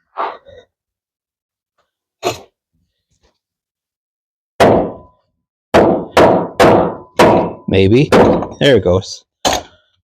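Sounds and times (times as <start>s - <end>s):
hatchet chopping wood: 4.6s - 5.1s, 5.7s - 8.5s.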